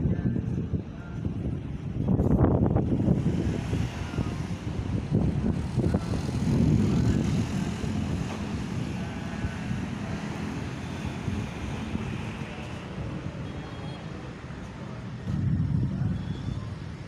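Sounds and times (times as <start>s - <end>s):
thunder rumbling and crackling: 15.1s - 17.0s.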